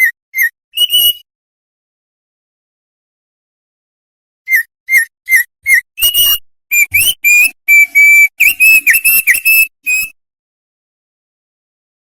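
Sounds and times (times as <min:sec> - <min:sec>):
songbird singing whistled notes: 0:00.0 - 0:01.2, 0:04.5 - 0:10.2.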